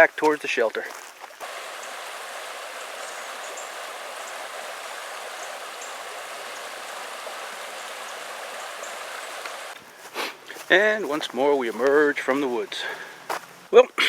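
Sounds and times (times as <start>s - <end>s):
running water rushing: 1.2s - 9.8s
faint high ticks: 8.8s - 9.7s.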